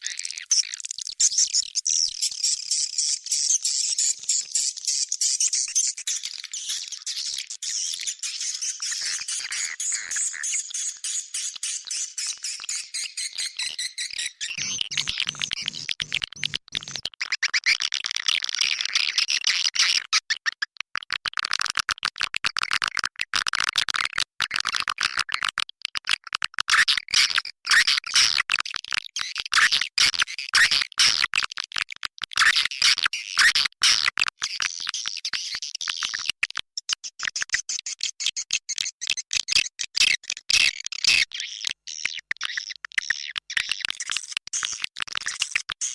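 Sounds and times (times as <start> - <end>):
swiftlets chirping and twittering: 0.0 - 15.9.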